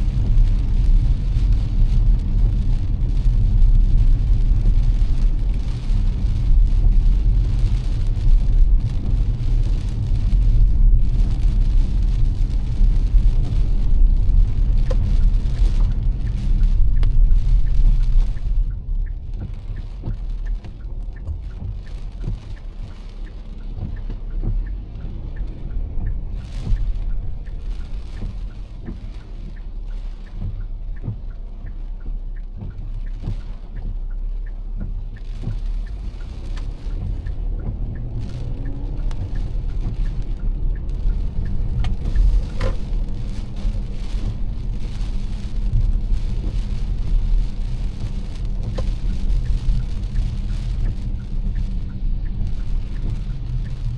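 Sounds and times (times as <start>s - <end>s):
car driving on wet road: 0.0s - 53.9s
heavy rain on a car: 0.0s - 53.9s.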